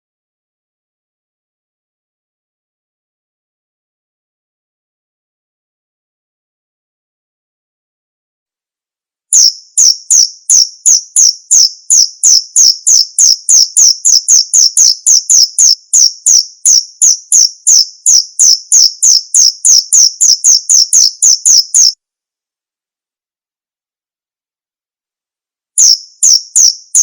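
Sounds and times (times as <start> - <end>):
cricket chirping: 9.4 - 22.0, 25.8 - 27.0.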